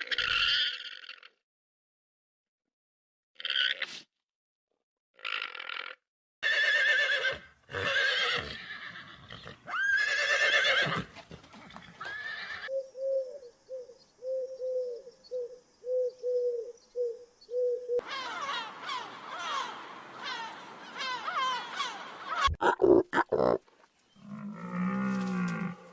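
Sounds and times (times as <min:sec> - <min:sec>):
horse whinnying: 0:06.4 - 0:12.7.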